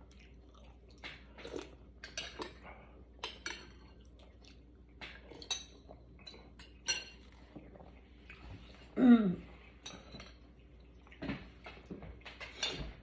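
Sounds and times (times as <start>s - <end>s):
utensils clinking against soup bowl: 5.4s - 7.4s, 9.8s - 10.5s, 12.2s - 13.0s.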